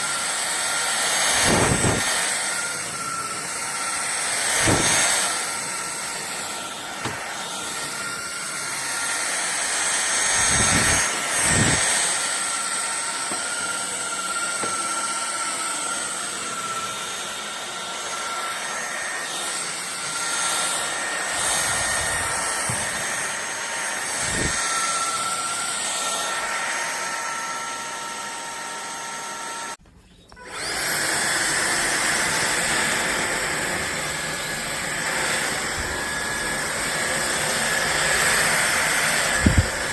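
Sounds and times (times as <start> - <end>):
stick vacuum whining: 0.0 - 39.9.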